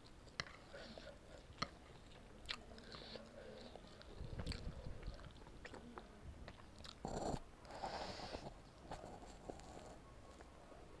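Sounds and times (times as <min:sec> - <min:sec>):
chewing and wet mouth sounds: 0:00.0 - 0:07.4.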